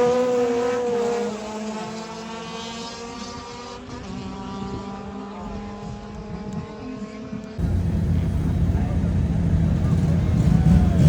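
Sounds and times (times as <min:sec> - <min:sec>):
distant engine revving high: 0:07.6 - 0:11.0.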